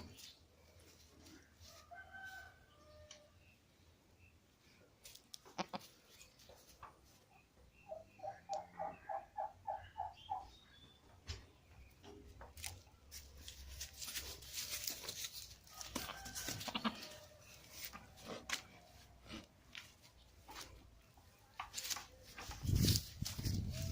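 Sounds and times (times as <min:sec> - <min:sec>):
farm animal calling: 0:05.4 - 0:06.4, 0:07.8 - 0:11.0, 0:13.8 - 0:19.9, 0:23.2 - 0:23.9
rustling: 0:12.5 - 0:23.9.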